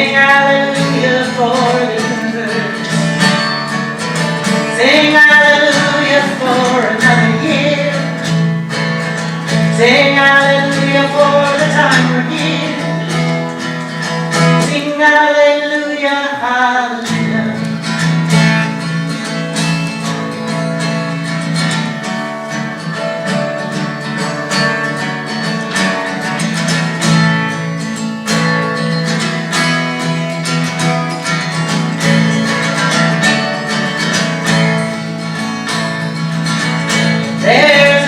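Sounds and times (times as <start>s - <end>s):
acoustic guitar strummed and picked: 0.0s - 38.0s.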